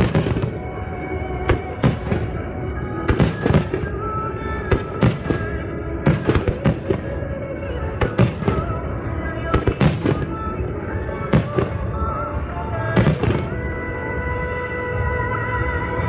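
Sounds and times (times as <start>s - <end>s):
fireworks bursting: 0.0s - 16.0s
music: 0.0s - 16.0s.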